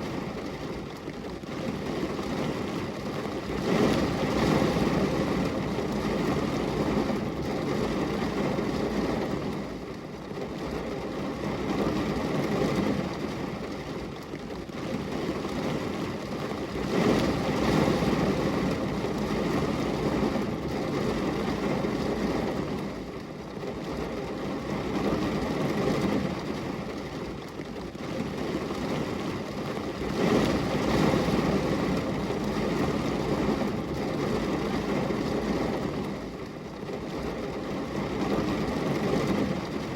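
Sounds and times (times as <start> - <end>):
rain on a glass window: 0.0 - 39.9.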